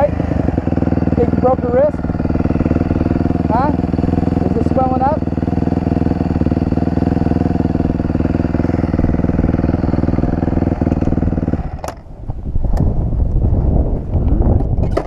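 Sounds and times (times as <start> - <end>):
dirt bike engine idling: 0.0 - 12.5
sharp clicks and knocks: 11.8 - 12.0.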